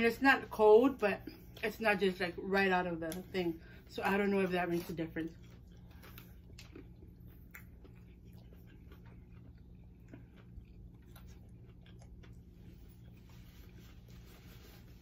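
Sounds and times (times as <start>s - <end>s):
steady low hum: 0.0s - 15.0s
people chewing chicken wings: 4.8s - 14.2s.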